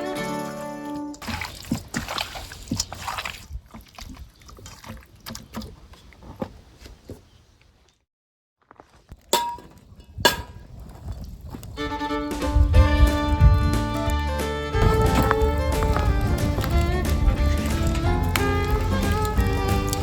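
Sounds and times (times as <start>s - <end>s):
liquid sloshing and pouring: 1.2s - 6.4s.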